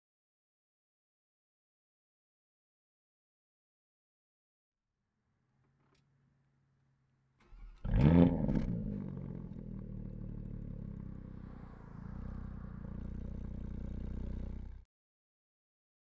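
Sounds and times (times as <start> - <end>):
car engine cranking: 7.4 - 12.4
car engine idling: 7.4 - 14.8
engine rev flare: 7.4 - 14.8.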